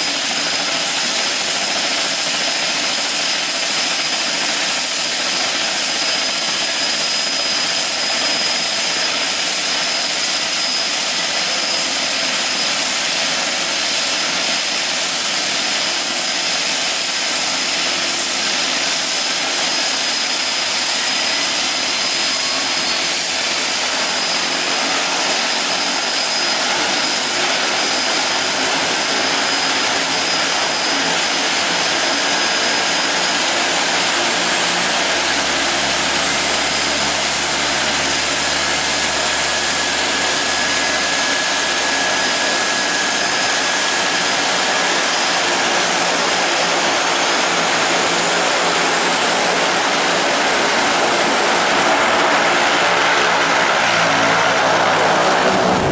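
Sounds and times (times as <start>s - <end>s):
high constant whine: 22.3s - 45.0s
turboprop engines roaring: 22.3s - 55.9s.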